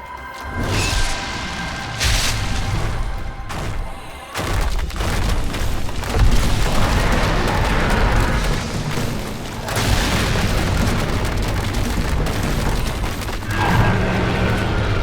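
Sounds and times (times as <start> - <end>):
battle roar with booms: 13.4 - 15.0.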